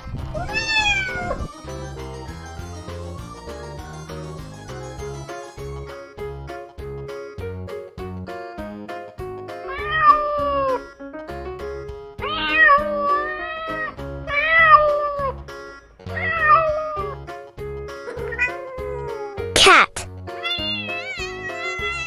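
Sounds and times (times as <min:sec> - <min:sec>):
background music with beat: 0:00.0 - 0:22.0
cat meowing: 0:00.4 - 0:01.4, 0:09.7 - 0:10.8, 0:12.2 - 0:14.8, 0:18.3 - 0:22.0.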